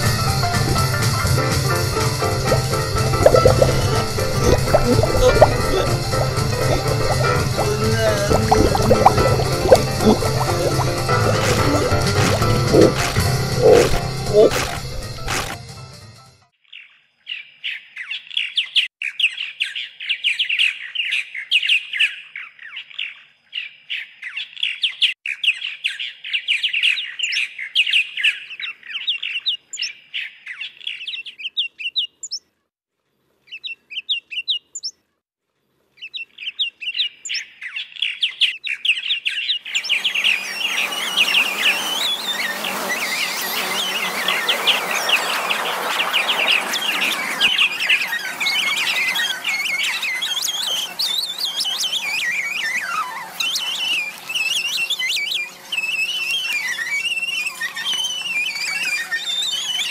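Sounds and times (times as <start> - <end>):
many birds chirping: 0.0 - 15.6, 36.0 - 59.9
steady rushing noise: 40.0 - 49.2.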